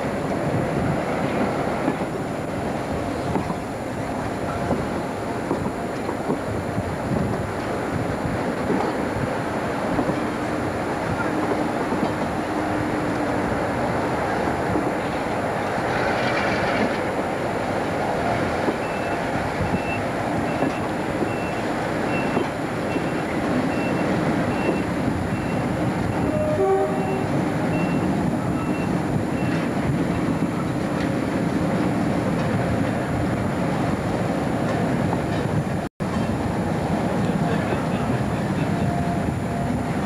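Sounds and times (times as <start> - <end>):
train wheels rumbling: 0.0 - 40.0
train horn note: 26.2 - 27.4.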